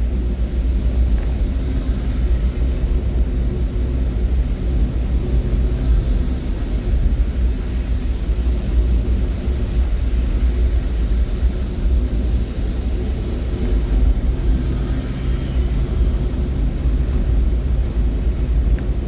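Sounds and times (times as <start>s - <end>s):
vehicle engine rumble: 0.0s - 19.0s.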